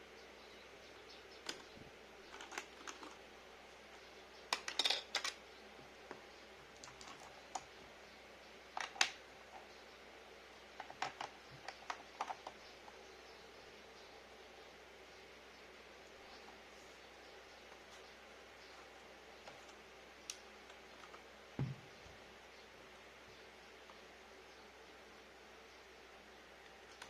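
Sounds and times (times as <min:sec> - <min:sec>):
mechanical keyboard keystrokes: 0:02.3 - 0:03.2.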